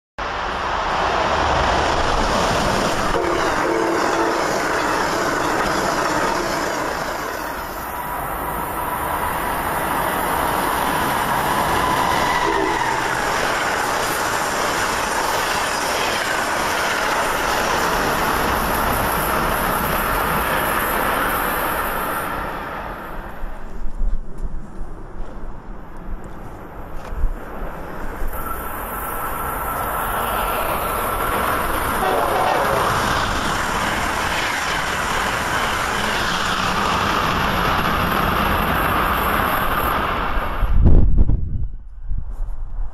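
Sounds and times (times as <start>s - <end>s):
train wheels rushing on rail: 0.2s - 42.4s
train horn blast: 3.1s - 4.7s, 12.2s - 13.0s, 31.9s - 33.3s.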